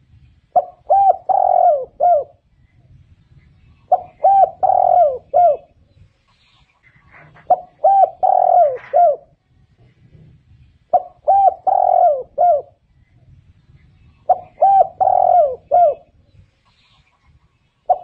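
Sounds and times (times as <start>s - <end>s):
dove cooing: 0.5s - 2.4s, 3.9s - 5.8s, 6.9s - 9.4s, 10.9s - 12.8s, 14.2s - 16.2s.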